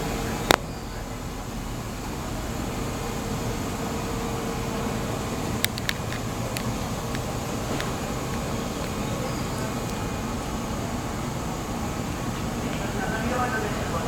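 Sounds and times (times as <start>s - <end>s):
faint steady hum: 0.0s - 14.0s
train rumble and hiss: 0.0s - 14.0s.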